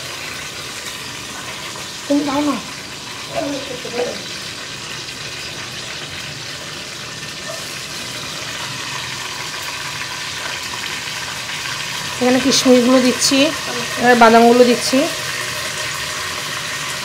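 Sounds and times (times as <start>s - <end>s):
fritters frying in oil: 0.0s - 17.0s
spices sizzling in hot fat: 0.0s - 17.0s.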